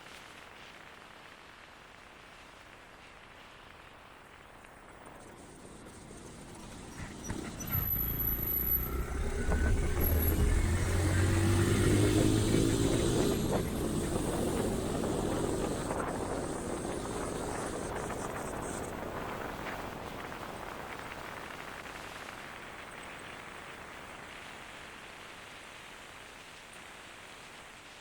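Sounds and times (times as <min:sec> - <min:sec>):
road and wind noise: 0:04.8 - 0:24.1
vehicle engine passing: 0:06.5 - 0:18.2.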